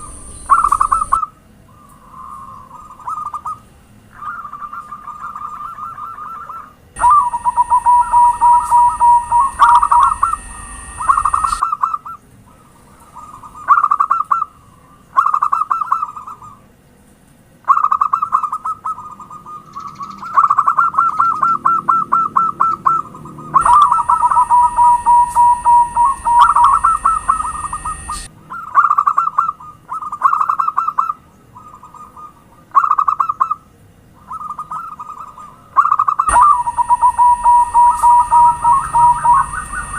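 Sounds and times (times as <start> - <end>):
dove cooing: 0.0 - 3.6, 4.2 - 11.6, 17.7 - 28.3, 34.3 - 39.9
faint high whine and hum: 0.0 - 39.9.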